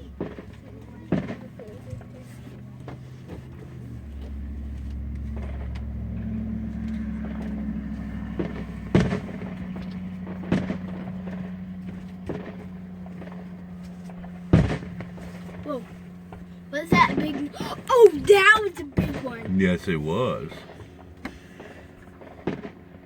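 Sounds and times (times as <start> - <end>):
firework bangs: 0.0 - 4.1, 7.2 - 13.6, 14.2 - 20.8, 21.7 - 22.9
vehicle engine hum: 0.0 - 23.0.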